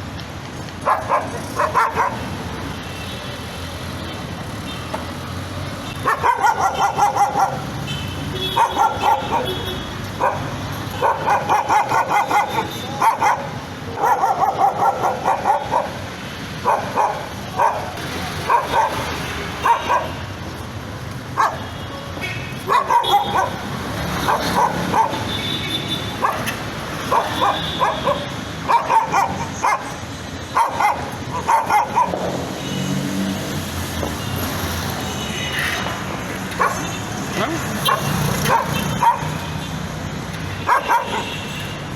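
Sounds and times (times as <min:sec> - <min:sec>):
dog barking: 0:00.8 - 0:02.4, 0:06.0 - 0:20.2, 0:21.3 - 0:21.8, 0:22.6 - 0:25.4, 0:26.1 - 0:32.6, 0:36.5 - 0:36.9, 0:37.5 - 0:39.6, 0:40.6 - 0:41.4.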